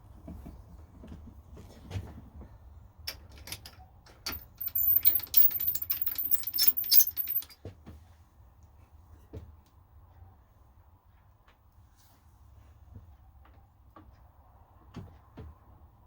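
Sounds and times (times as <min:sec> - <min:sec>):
small metal objects clinking: 0:04.3 - 0:07.6.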